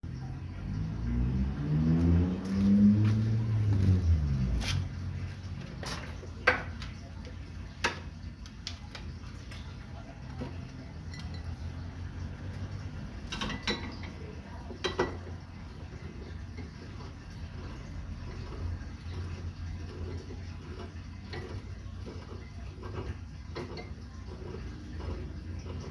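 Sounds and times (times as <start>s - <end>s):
glass and metal clinks: 11.0s - 11.6s.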